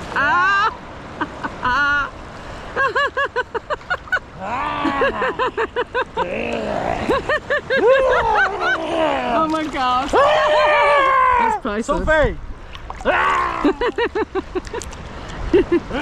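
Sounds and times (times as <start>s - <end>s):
people laughing and shrieking: 4.4s - 9.3s, 13.0s - 14.2s.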